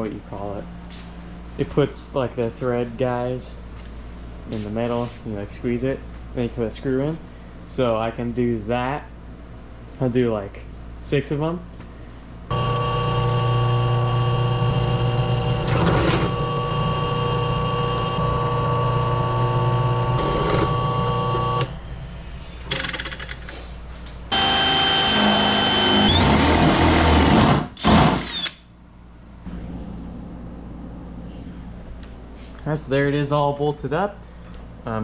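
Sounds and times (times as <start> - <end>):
power drill drilling sheet metal: 12.5 - 21.7, 24.3 - 28.6.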